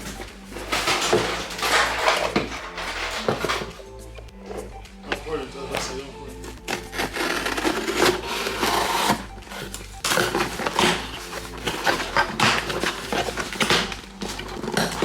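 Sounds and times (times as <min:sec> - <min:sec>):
package rustling and ripping: 0:05.7 - 0:15.0.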